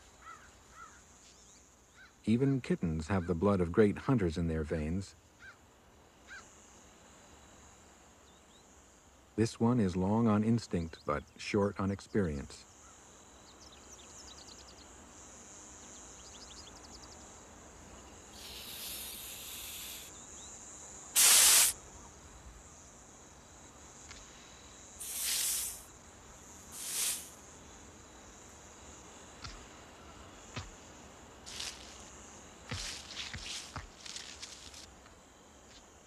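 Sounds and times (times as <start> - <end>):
crickets chirping: 0.0 - 36.0
snake hissing: 18.3 - 20.2, 21.1 - 21.8, 25.0 - 25.9, 26.6 - 27.4.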